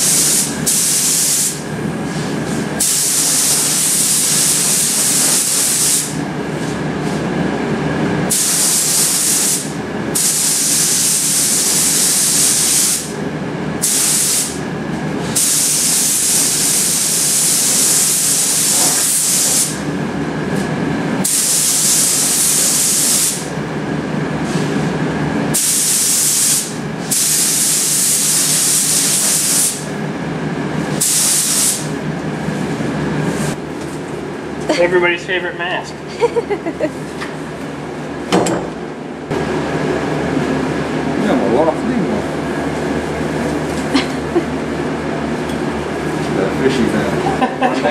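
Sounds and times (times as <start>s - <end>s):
paint spray gun hissing: 0.0s - 1.6s, 2.8s - 6.2s, 8.3s - 13.1s, 13.8s - 14.6s, 15.4s - 19.8s, 21.2s - 23.4s, 25.6s - 29.8s, 31.0s - 31.9s.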